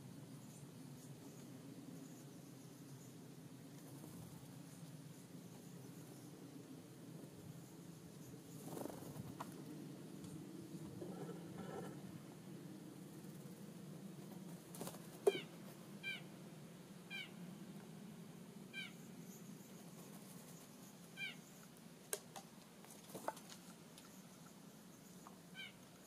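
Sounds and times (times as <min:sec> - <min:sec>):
bird high mewing call: 0:15.3 - 0:16.3, 0:17.1 - 0:17.4, 0:18.7 - 0:19.1, 0:21.2 - 0:21.5, 0:25.5 - 0:25.8.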